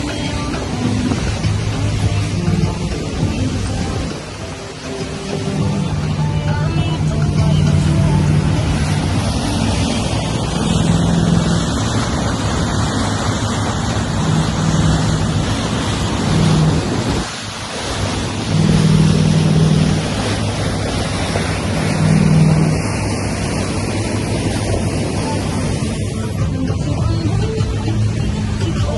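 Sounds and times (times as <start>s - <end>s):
wind buffeting microphone: 0.0s - 27.8s
boat engine drone: 0.0s - 28.9s
water rushing along hull: 0.0s - 28.9s.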